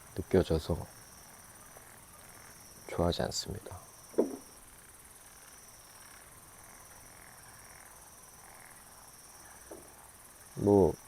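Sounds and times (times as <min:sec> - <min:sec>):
faint frog calls: 0:00.0 - 0:11.0
high-pitched insect trill: 0:00.0 - 0:11.0
loud frog croak: 0:05.4 - 0:11.0.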